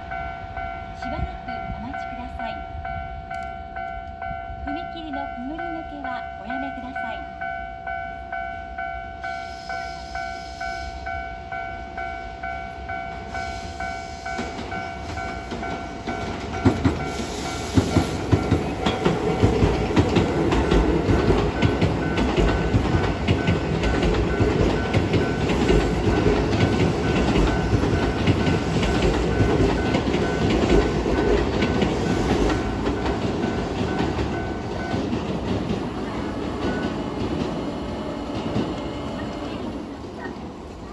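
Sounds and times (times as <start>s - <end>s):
electric train passing: 0.0s - 40.9s
level-crossing warning bell ringing: 0.0s - 40.9s
wheels clacking on rail joints: 14.2s - 40.9s.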